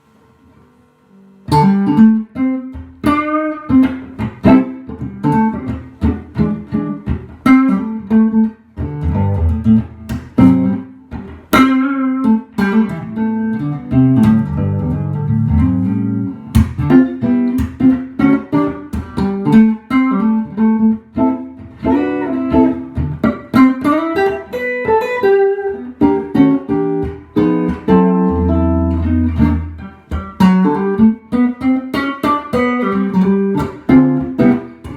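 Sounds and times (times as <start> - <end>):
electric guitar notes and chords: 1.4 - 34.9.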